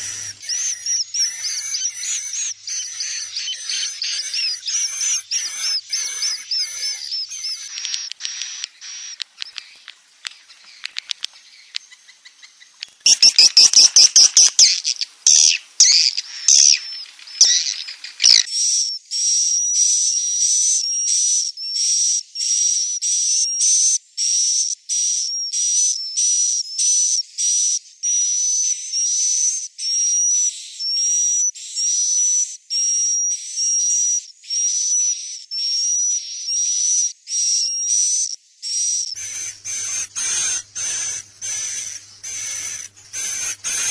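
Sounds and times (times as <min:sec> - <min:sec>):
high chirps: 0:00.0 - 0:18.5, 0:39.2 - 0:43.9
swiftlet calls chattering: 0:00.0 - 0:18.5, 0:39.2 - 0:43.9.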